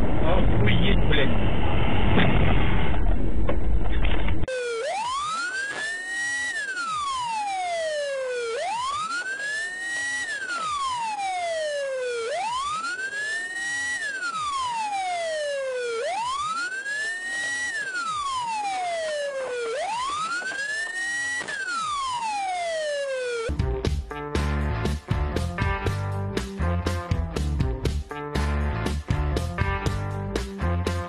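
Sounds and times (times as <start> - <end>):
emergency siren wailing: 4.5 - 23.6.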